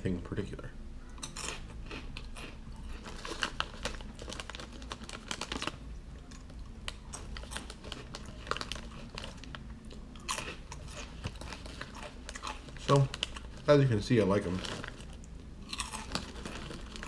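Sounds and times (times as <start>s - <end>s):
crisp snack crunching: 1.2s - 17.0s.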